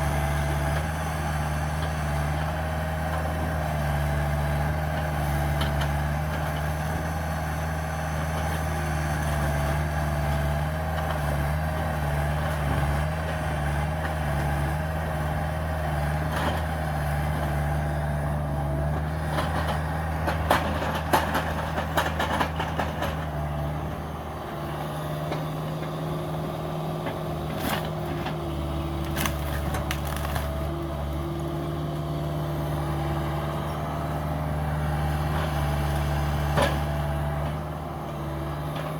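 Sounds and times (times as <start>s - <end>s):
excavator diesel engine running: 0.0s - 38.9s
sharp cracks and snaps: 29.0s - 30.7s.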